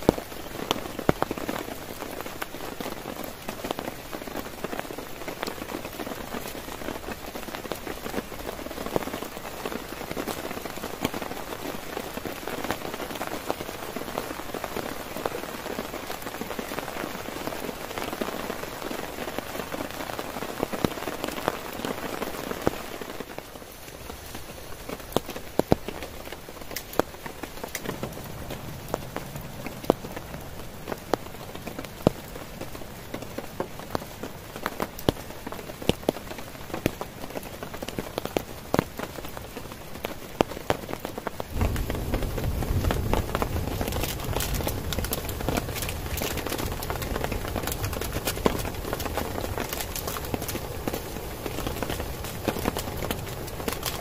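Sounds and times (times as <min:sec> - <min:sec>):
heavy rain drumming on a tent: 0:00.0 - 0:54.0
raindrops ticking on fabric: 0:00.0 - 0:54.0.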